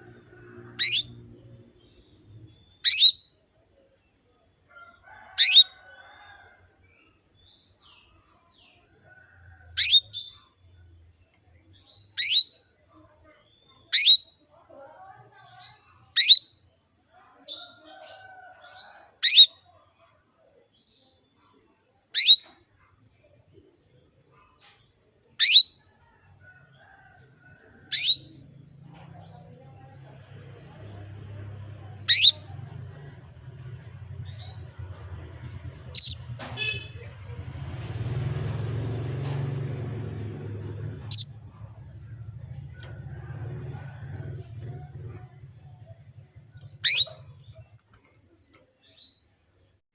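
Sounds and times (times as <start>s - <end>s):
canary chirping: 0.1s - 3.4s, 5.2s - 5.8s, 9.8s - 10.5s, 11.8s - 12.6s, 13.7s - 14.4s, 15.4s - 16.6s, 19.2s - 19.6s, 22.2s - 22.6s, 24.8s - 25.8s, 27.9s - 37.4s, 38.0s - 48.0s.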